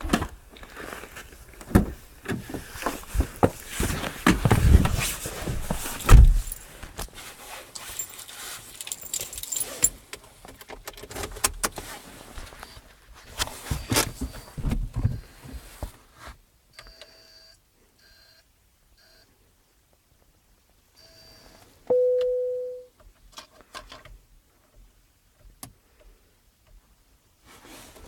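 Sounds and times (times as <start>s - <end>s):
keys jangling: 6.2s - 6.7s, 7.8s - 10.0s
short electronic beeps: 21.0s - 22.9s.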